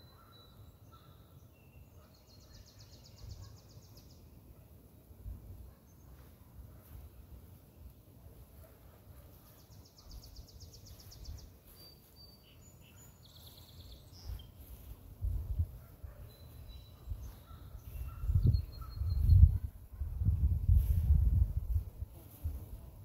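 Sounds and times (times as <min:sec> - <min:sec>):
songbird trill: 0:00.0 - 0:04.8, 0:05.6 - 0:19.7
bird whistles: 0:16.4 - 0:19.4.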